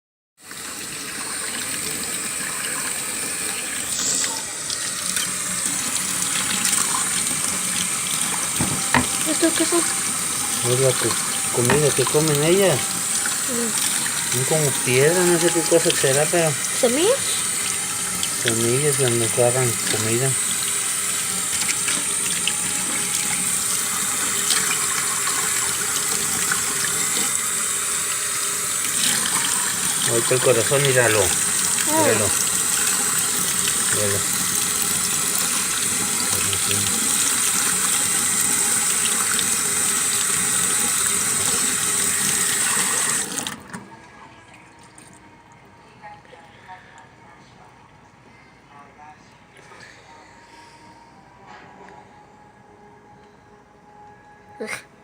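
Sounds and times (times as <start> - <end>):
tap water running into sink: 0.4 - 43.8.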